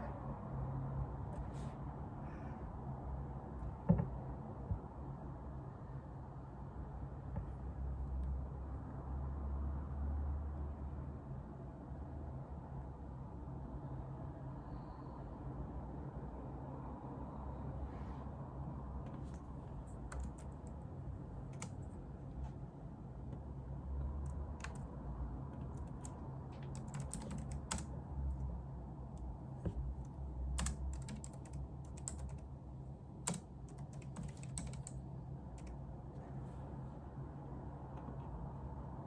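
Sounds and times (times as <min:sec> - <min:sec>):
steady low hum: 0:14.5 - 0:39.0
typing on computer keyboard: 0:19.2 - 0:20.8, 0:21.4 - 0:21.9, 0:24.2 - 0:24.9, 0:25.6 - 0:28.4, 0:30.0 - 0:32.5, 0:33.2 - 0:35.0, 0:35.6 - 0:35.8.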